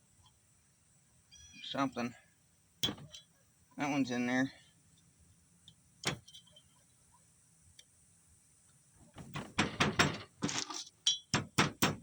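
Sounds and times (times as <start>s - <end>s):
taps and knocks: 9.2s - 10.6s, 11.3s - 12.0s
metal tools clicking and clinking: 9.9s - 11.4s.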